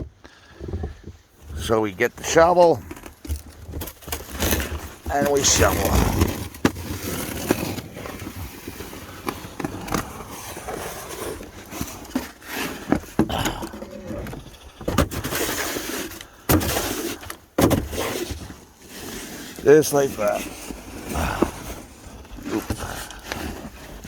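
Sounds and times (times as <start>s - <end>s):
snow shovel scraping snow: 3.8s - 13.2s, 13.9s - 24.0s.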